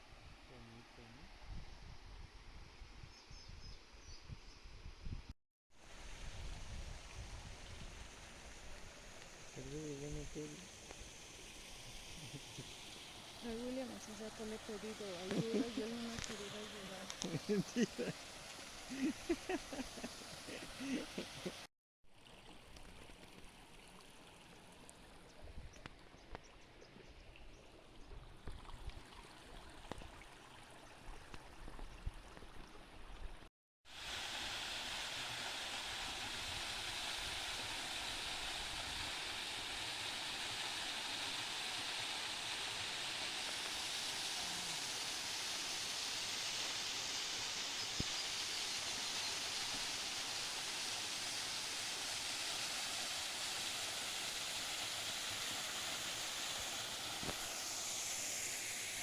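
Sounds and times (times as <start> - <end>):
stream water rushing: 5.8 - 25.2, 33.9 - 59.0.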